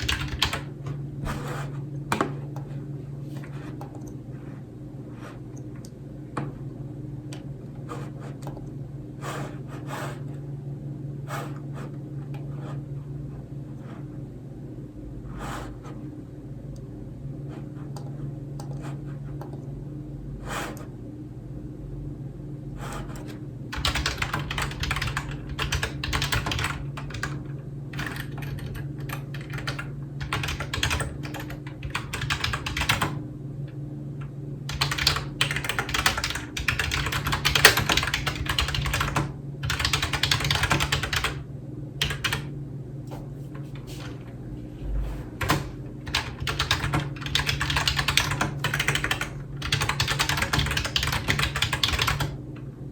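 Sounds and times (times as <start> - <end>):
typing on computer keyboard: 0.0 - 0.7, 23.2 - 33.2, 34.7 - 41.4, 42.0 - 42.5, 45.4 - 52.4
steady low hum: 0.0 - 52.9.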